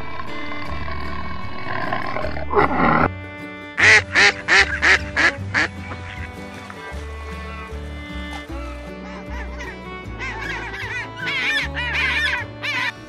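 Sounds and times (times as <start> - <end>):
music playing: 0.0 - 13.0
honking bird calls: 3.8 - 13.0.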